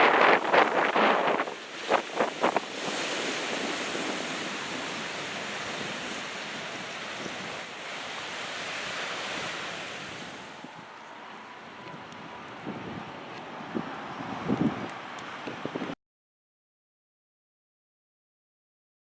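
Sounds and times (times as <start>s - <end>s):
ocean surf: 0.0s - 16.0s
wind: 0.0s - 16.0s.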